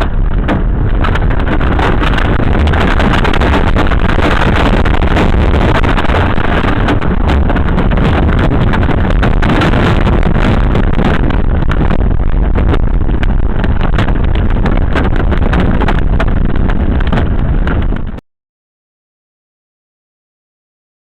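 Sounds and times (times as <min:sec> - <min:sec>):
tornado winds roaring: 0:00.0 - 0:18.2.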